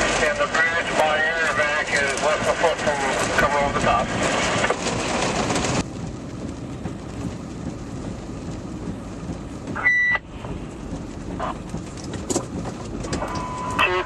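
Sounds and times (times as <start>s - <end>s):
vehicle engine low rumble: 0.0s - 14.0s
high radio beep: 9.8s - 10.2s, 13.2s - 14.0s.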